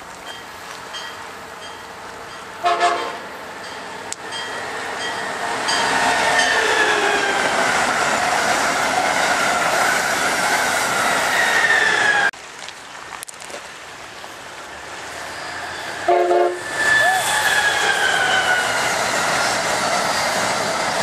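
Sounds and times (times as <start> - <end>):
falling whine of train: 0.0 - 12.4, 14.4 - 21.0
train passing at speed: 0.0 - 12.4, 14.1 - 21.0
train horn blast: 2.6 - 3.3, 16.0 - 17.9.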